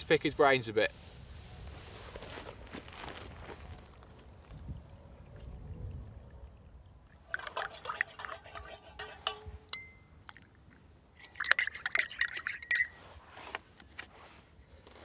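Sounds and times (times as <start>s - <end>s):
teaspoon clinking against mug: 7.3s - 10.1s, 11.2s - 13.0s.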